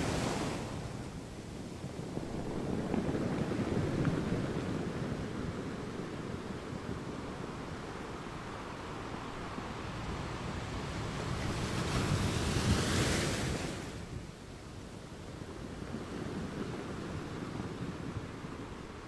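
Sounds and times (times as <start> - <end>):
ocean waves surf: 0.0 - 14.3.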